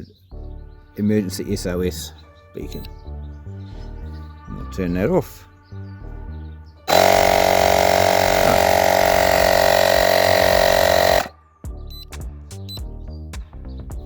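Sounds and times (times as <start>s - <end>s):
air compressor buzzing: 6.9s - 11.3s.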